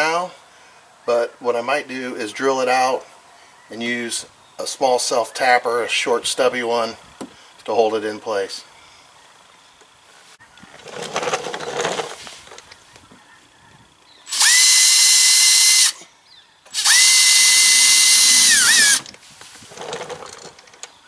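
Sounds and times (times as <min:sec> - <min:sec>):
power drill whining: 0:14.3 - 0:16.0, 0:16.7 - 0:19.1.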